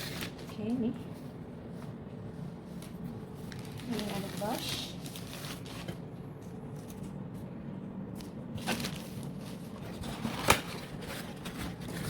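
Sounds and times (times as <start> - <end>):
low room hum: 0.0 - 12.0
packaging rustling: 2.8 - 6.1, 8.2 - 12.0.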